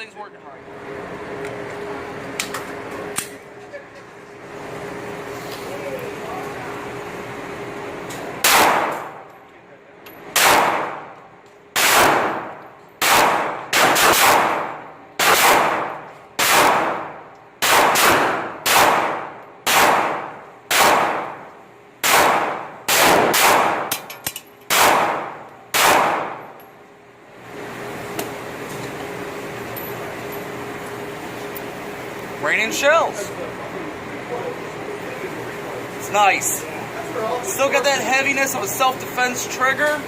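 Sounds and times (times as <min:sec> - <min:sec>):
pistol shots echoing: 0:08.4 - 0:09.2, 0:10.3 - 0:11.2, 0:11.8 - 0:24.1, 0:24.7 - 0:26.6.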